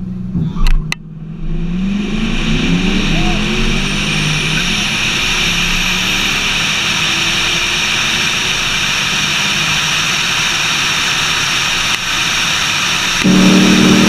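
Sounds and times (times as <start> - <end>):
car engine and wind noise: 0.0 - 14.0
faint high whine: 0.4 - 10.2, 13.1 - 14.0.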